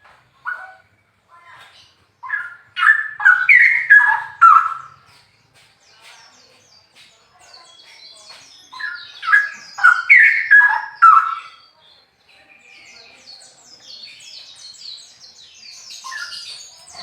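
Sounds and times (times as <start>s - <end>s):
bird twittering: 1.6s - 5.2s, 7.6s - 11.8s, 12.6s - 17.0s
bird singing whistled notes: 2.2s - 5.0s, 7.5s - 17.0s.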